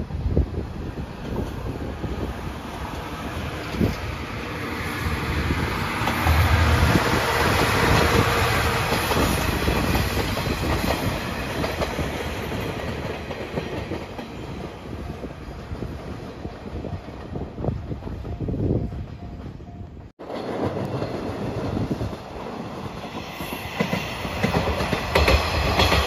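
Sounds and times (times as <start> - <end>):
train wheels clattering over rail joints: 23.7 - 26.0.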